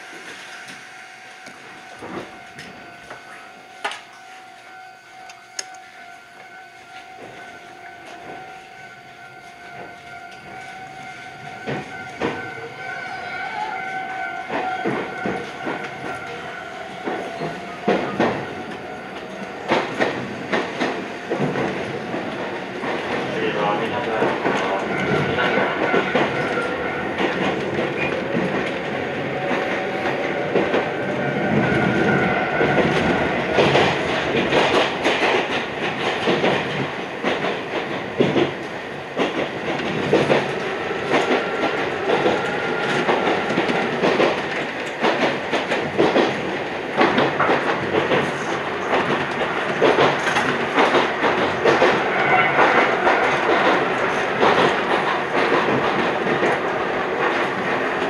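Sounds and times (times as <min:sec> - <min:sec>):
electric train rolling rumble: 0:00.0 - 0:58.0
wheels clacking over rail joints: 0:14.4 - 0:58.0.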